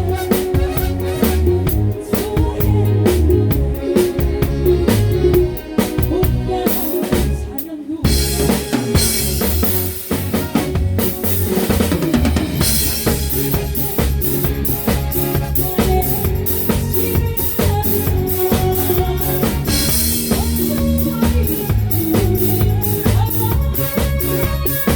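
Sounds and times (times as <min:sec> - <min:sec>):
drum kit beat: 0:00.0 - 0:24.9
live band playing: 0:00.0 - 0:24.9.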